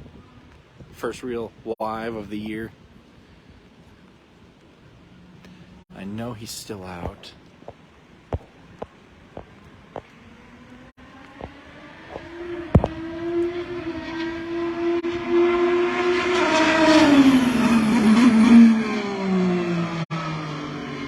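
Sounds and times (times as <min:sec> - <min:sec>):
race car engine passing: 0:10.2 - 0:21.0.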